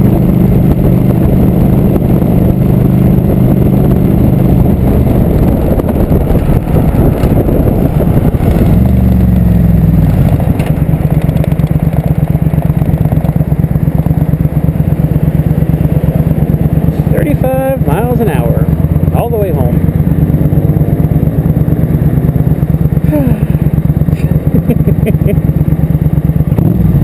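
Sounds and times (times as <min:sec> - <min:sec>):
motorcycle engine cruising: 0:00.0 - 0:27.0.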